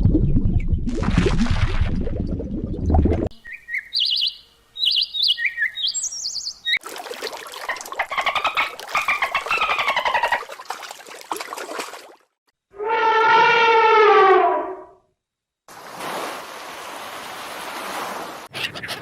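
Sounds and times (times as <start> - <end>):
bird trilling song: 3.4 - 6.8.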